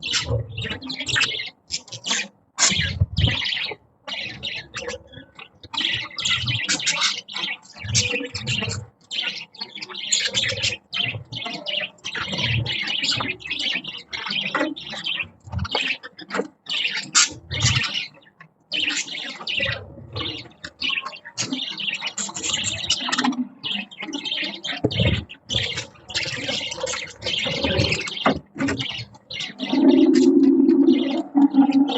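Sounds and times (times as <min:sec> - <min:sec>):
budgerigars chirping and chattering: 0:00.0 - 0:31.9.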